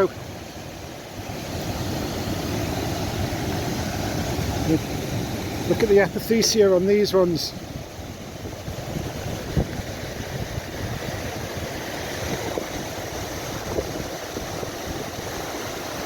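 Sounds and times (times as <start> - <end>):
rushing stream: 0.0 - 16.0
wind buffeting microphone: 7.5 - 16.0.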